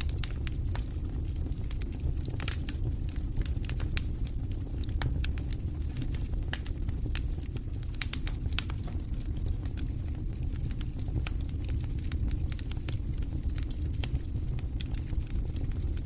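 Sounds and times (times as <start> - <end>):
campfire crackling and popping: 0.0 - 16.0
low rumble of flame: 0.0 - 16.0.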